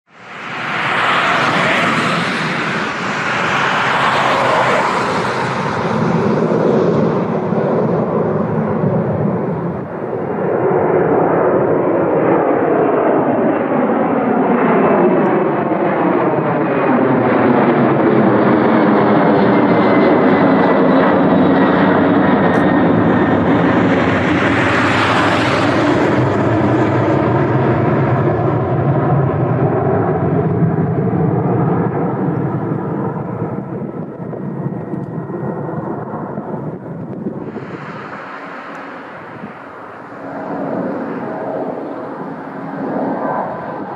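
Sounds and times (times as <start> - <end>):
jet engines passing close: 0.1 - 43.9.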